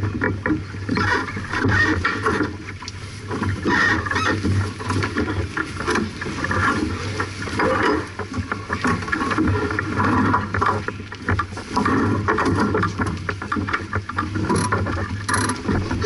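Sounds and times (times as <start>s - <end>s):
water splashing against a hull: 0.0s - 16.0s.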